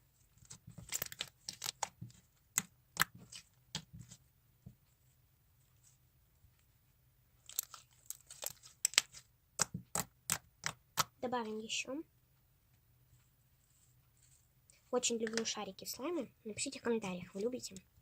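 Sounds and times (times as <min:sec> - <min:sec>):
slime with foam beads crackling: 0:07.4 - 0:11.1.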